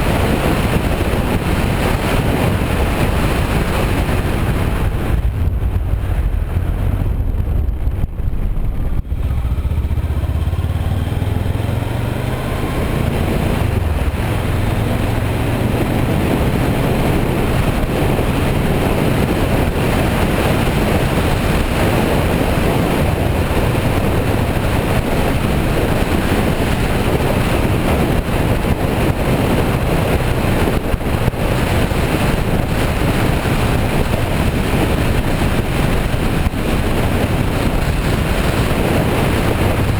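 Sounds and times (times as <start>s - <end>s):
wind noise on microphone: 0.0s - 39.9s
motorcycle engine pulling away: 8.6s - 39.9s.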